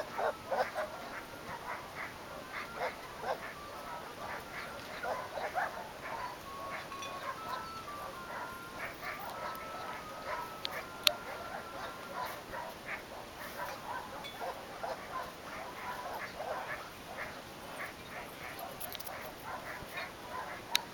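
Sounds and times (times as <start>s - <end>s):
dog whining: 0.0s - 16.7s
dogs yipping: 0.0s - 20.9s.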